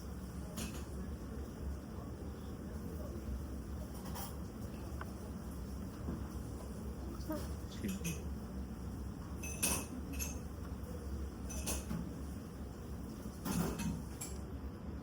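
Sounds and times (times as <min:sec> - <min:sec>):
low room hum: 0:00.0 - 0:15.0
dishes and cutlery clinking: 0:03.9 - 0:04.5, 0:07.4 - 0:08.3, 0:09.3 - 0:10.5, 0:11.4 - 0:12.2, 0:13.4 - 0:14.4.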